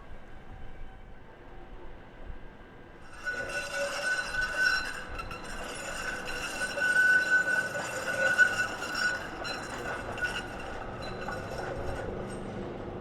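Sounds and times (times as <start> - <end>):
tram wheels squealing: 3.0 - 13.0.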